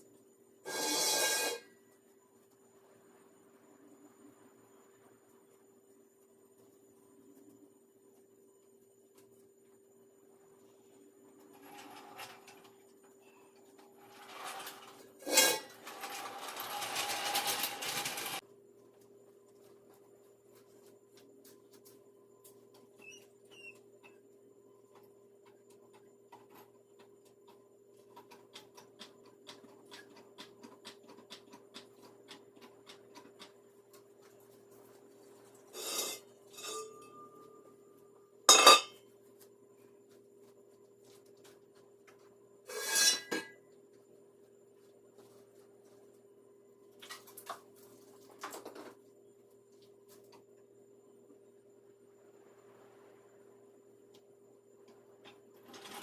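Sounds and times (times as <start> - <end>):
faint steady hum: 0.0 - 56.0
metal rattling scrape: 0.7 - 1.7, 11.5 - 12.7, 13.9 - 18.4, 35.7 - 37.2, 42.7 - 43.4.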